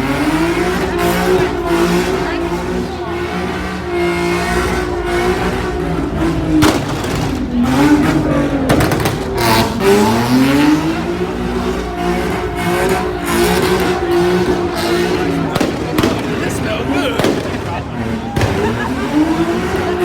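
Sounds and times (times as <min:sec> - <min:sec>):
car engine revving: 0:00.0 - 0:20.0
engine sharp cracks: 0:03.9 - 0:19.9.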